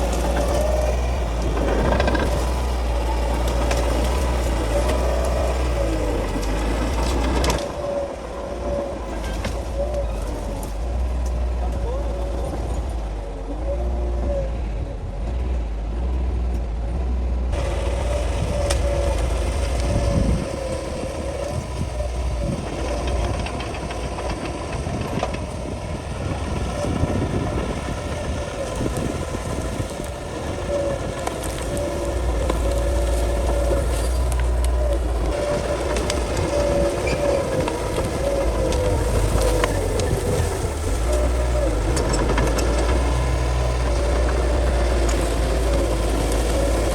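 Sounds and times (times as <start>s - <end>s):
bulldozer diesel engine: 0.0s - 46.9s
wavering high whine: 17.5s - 46.9s.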